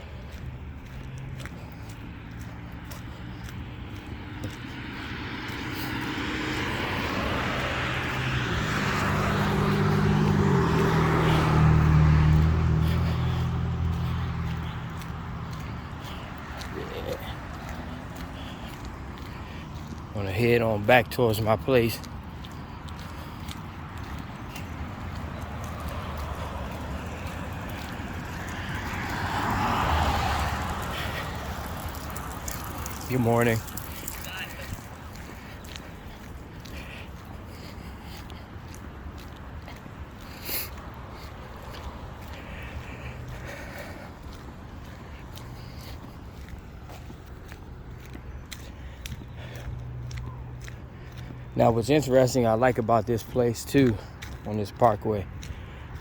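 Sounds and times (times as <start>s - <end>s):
vehicle passing by: 0.0s - 56.0s.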